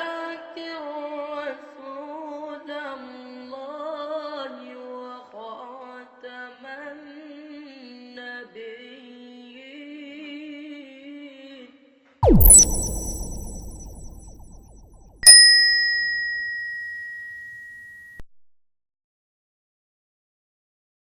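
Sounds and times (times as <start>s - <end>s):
electronic ding with falling swoosh: 12.2s - 18.0s.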